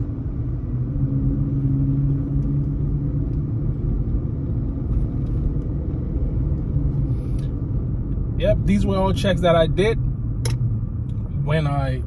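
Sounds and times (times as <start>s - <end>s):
car engine and road noise: 0.0s - 12.0s
man talking: 8.4s - 10.0s, 11.4s - 12.0s.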